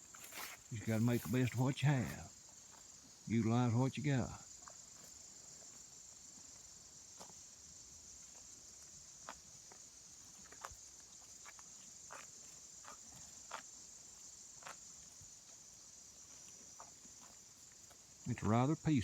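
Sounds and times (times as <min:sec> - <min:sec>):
insects chirring: 0:00.0 - 0:19.0
soft ticks and rustles: 0:04.4 - 0:18.5.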